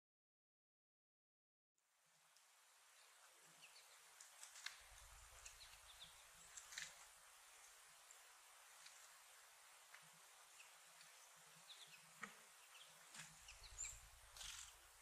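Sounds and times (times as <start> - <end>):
small birds chipping: 2.1 - 15.0.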